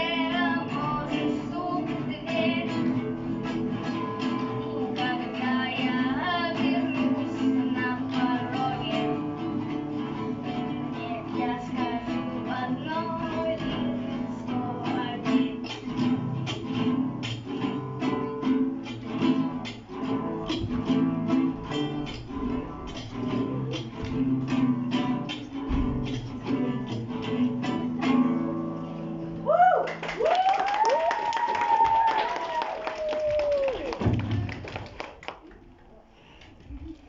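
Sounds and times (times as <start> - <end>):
guitar strummed: 0.0 - 29.4.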